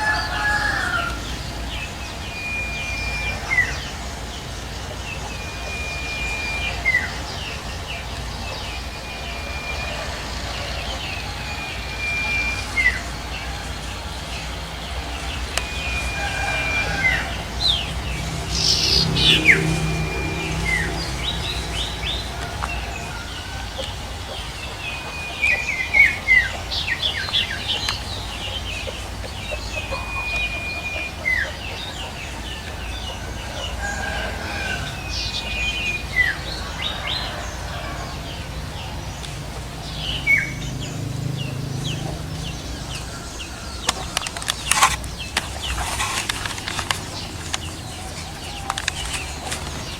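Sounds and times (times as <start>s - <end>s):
bird whistling and chirping: 0.0s - 37.4s.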